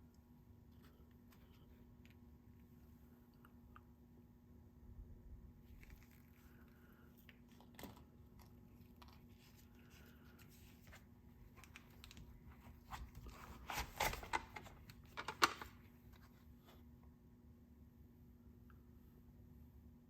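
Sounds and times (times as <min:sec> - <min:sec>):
crinkly rustling: 0:05.6 - 0:16.7.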